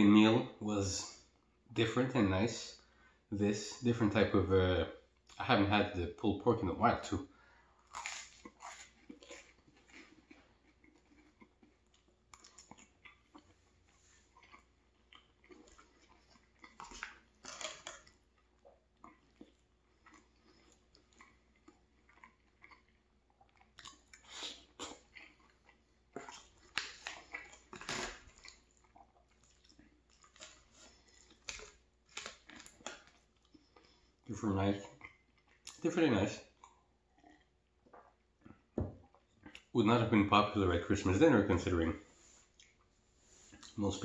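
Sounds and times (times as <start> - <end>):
close chewing: 7.8 - 35.8, 36.5 - 39.7.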